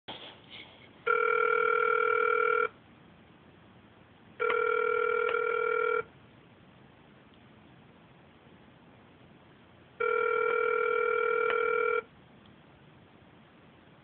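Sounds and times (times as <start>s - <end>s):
telephone ringback tone: 1.1s - 2.7s, 4.4s - 6.1s, 10.0s - 12.1s.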